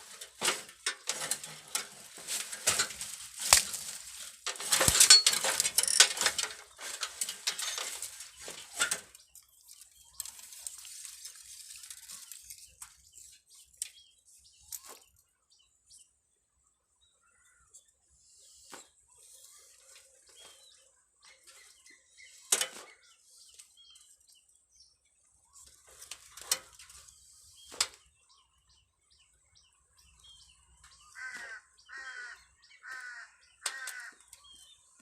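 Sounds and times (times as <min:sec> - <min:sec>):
rustling clicks and snaps: 0:00.0 - 0:14.0, 0:25.8 - 0:28.0.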